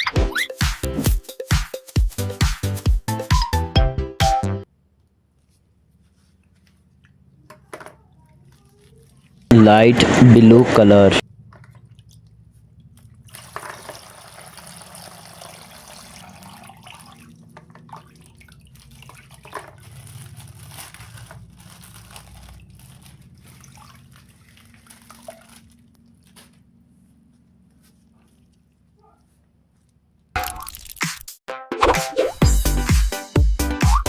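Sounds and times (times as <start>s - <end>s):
water spilling from bag: 13.2s - 26.6s
plastic crinkling: 18.7s - 30.2s.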